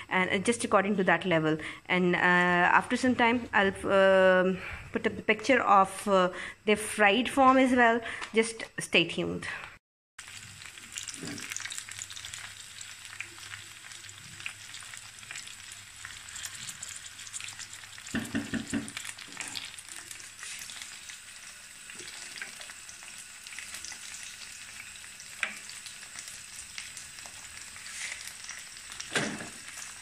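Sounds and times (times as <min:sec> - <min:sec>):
fries sizzling in hot oil: 0:10.2 - 0:30.0.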